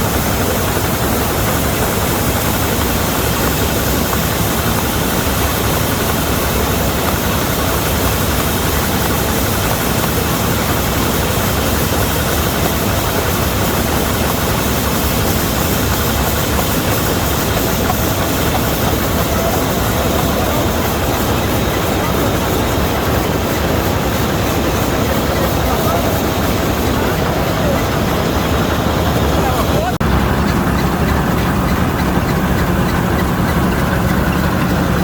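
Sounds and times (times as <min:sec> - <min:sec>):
combine harvester running: 0:00.0 - 0:35.0.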